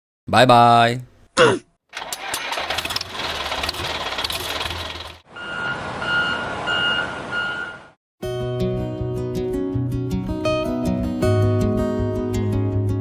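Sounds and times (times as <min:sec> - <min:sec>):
engine running with rattling: 0:02.0 - 0:05.2
reversing beeper: 0:05.4 - 0:08.0.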